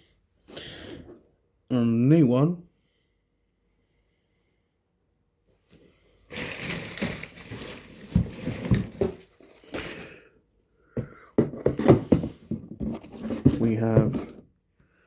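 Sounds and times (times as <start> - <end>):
rustling and crinkling: 5.6 - 10.1, 11.5 - 14.5.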